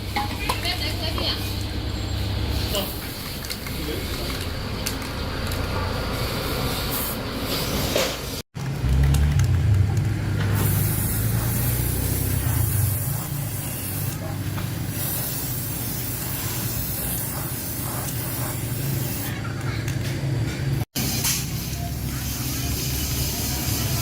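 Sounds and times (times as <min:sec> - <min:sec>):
spraying hiss: 0:10.4 - 0:19.3.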